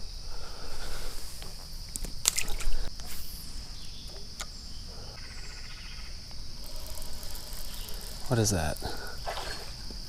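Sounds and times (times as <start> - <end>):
crickets trilling: 0.0 - 10.0
water splashing: 2.2 - 2.9, 8.2 - 9.9.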